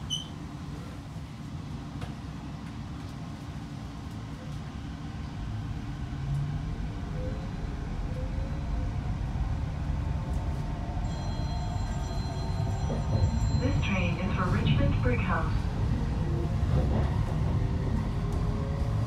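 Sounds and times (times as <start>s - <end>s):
electric train rumble: 0.0s - 19.0s.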